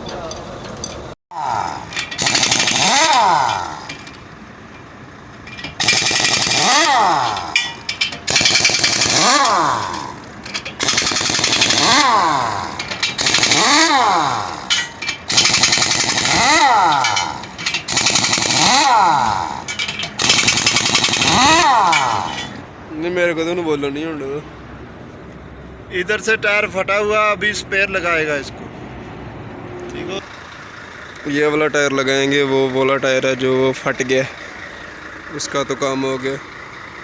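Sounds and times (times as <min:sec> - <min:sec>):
pneumatic impact wrench bursts: 0:01.4 - 0:04.2, 0:05.5 - 0:22.6.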